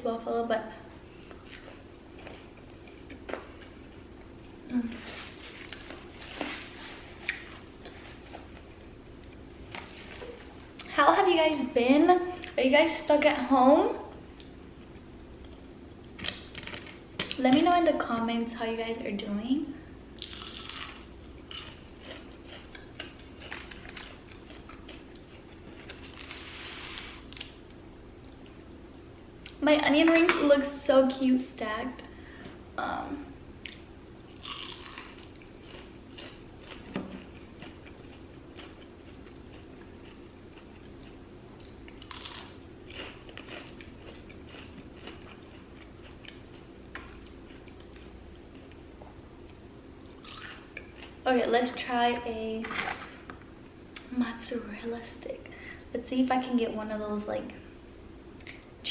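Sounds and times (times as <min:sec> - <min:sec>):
crunchy chewing of fried food: 0:01.2 - 0:10.9, 0:15.4 - 0:17.4, 0:20.2 - 0:28.6, 0:33.6 - 0:51.2.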